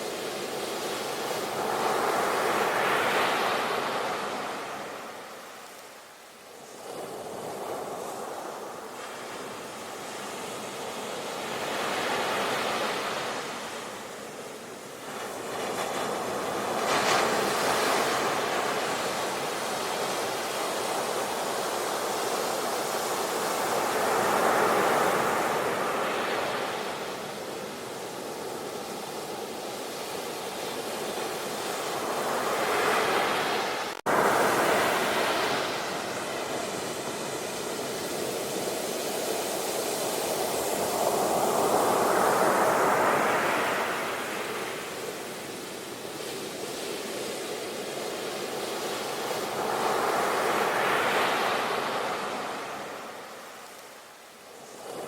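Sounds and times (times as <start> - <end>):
ocean surf breaking: 30.3 - 46.1, 47.7 - 53.8.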